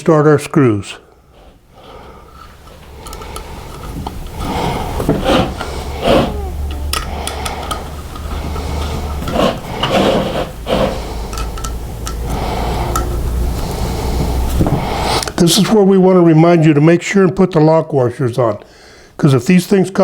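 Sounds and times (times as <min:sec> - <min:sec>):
metal parts scraping and clinking: 0:02.3 - 0:05.7, 0:06.7 - 0:10.5, 0:11.1 - 0:13.5.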